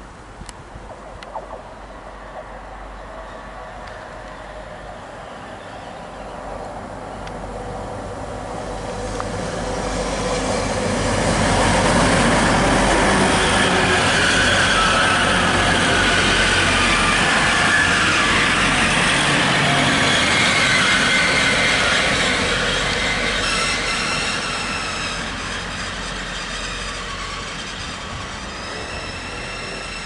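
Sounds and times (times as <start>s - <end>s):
diesel train running past: 0.0s - 30.0s
wheels squealing: 8.5s - 30.0s.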